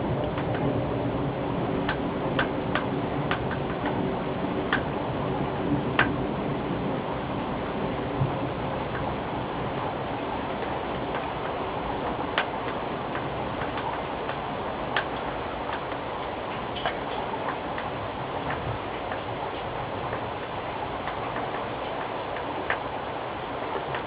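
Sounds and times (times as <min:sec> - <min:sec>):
rain hissing: 0:00.0 - 0:24.0
drips ticking: 0:01.7 - 0:05.0, 0:10.0 - 0:24.0.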